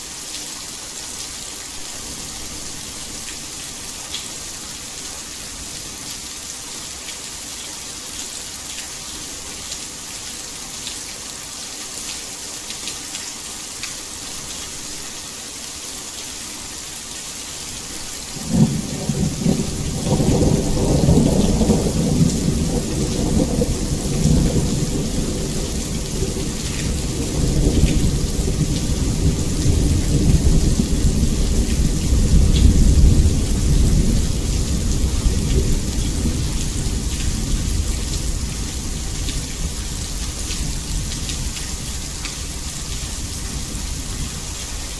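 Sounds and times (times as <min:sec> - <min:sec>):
heavy rain: 0:00.0 - 0:44.9
low thunder rumble: 0:18.4 - 0:39.8.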